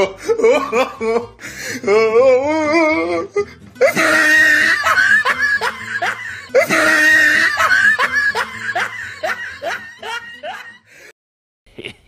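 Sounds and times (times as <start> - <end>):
laughing sound effect: 3.8 - 10.9.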